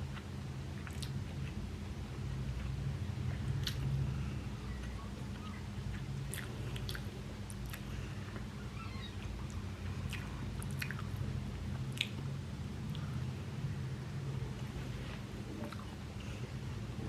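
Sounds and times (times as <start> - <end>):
steady low hum: 0.0 - 17.0
mouth chewing food: 0.1 - 1.6, 2.6 - 4.0, 4.7 - 8.5, 9.2 - 12.3
wet lip and tongue clicks: 0.8 - 1.2, 3.6 - 3.9, 9.5 - 11.1, 11.8 - 12.2.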